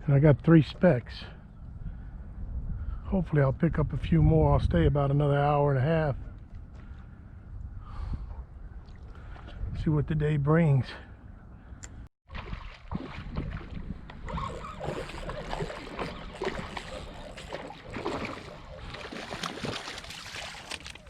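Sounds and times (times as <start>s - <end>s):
wind on microphone: 1.6s - 5.2s, 7.4s - 10.0s, 12.9s - 20.1s.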